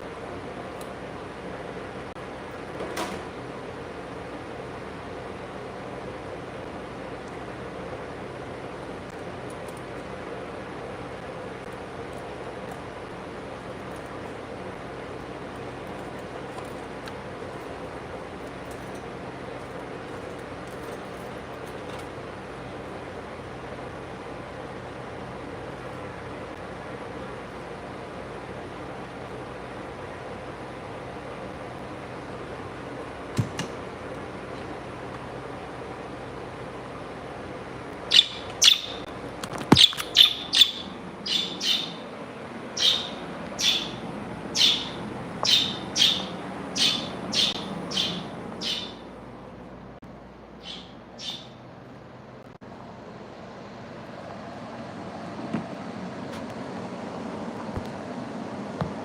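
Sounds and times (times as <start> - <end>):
traffic noise: 33.9 - 59.0
high bird chirps: 38.1 - 39.1, 39.7 - 42.1, 42.7 - 49.1, 50.6 - 51.6.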